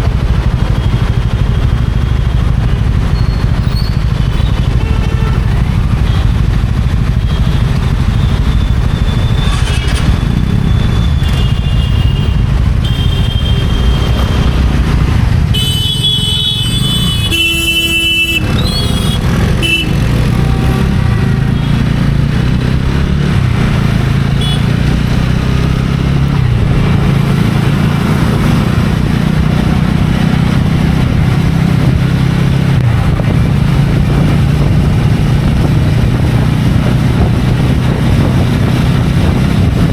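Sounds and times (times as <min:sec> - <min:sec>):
motorcycle engine running: 0:00.0 - 0:39.9
vehicle horn: 0:04.4 - 0:06.2, 0:11.2 - 0:14.5, 0:15.5 - 0:20.7, 0:24.3 - 0:24.8.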